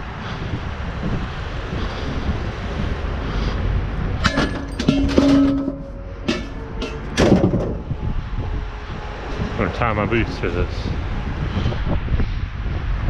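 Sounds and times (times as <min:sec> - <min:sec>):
wind buffeting microphone: 0:00.0 - 0:13.0
metal piece ringing: 0:04.2 - 0:08.0
metal scrap clanking: 0:04.2 - 0:08.0.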